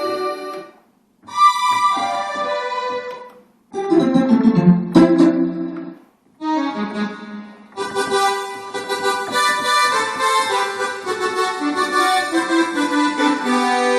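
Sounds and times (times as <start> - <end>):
synthesizer chords: 3.8 - 9.4.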